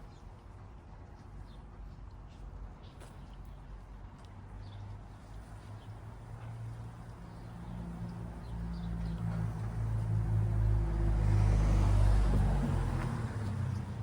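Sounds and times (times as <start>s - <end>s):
car approaching: 6.7s - 14.0s.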